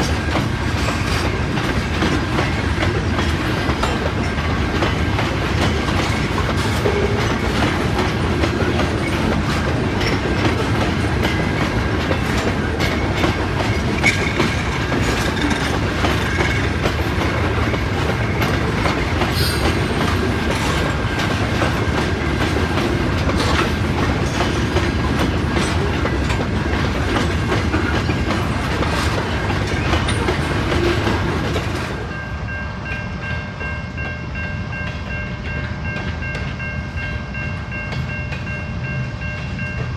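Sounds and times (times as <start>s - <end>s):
wheels clicking over rail joints: 0.0s - 32.1s
freight train rumbling past: 0.0s - 39.9s.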